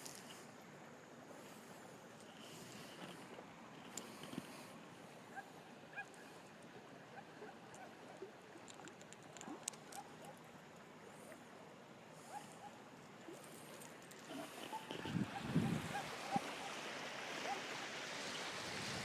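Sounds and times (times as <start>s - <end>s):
low outdoor hiss: 0.0s - 19.0s
light clicks: 8.6s - 10.4s.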